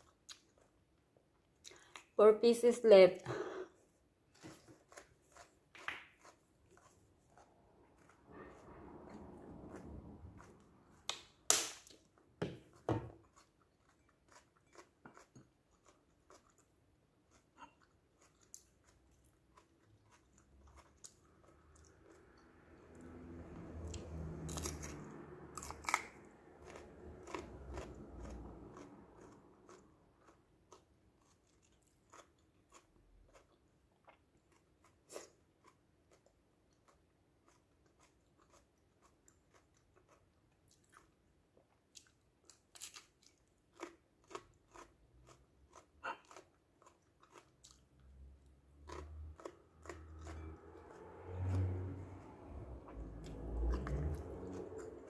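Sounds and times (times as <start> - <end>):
crunchy chewing of pepper: 4.3 - 12.1, 12.7 - 55.0.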